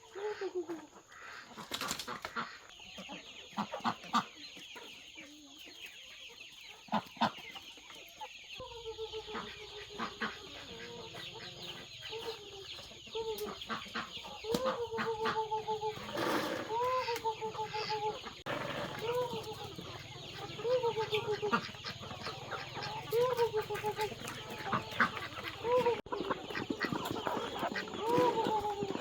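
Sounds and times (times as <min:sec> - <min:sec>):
chickens clucking: 0:00.0 - 0:29.0
drawn-out repeated calls: 0:13.8 - 0:29.0.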